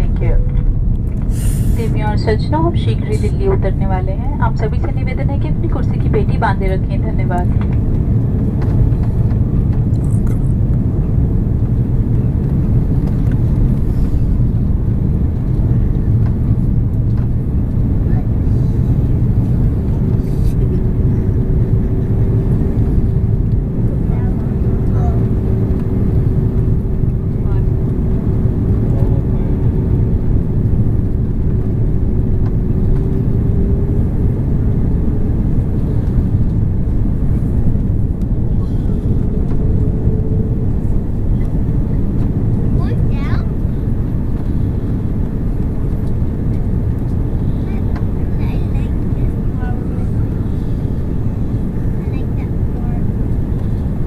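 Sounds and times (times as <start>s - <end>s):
airplane cabin engine roar: 0.0s - 54.0s.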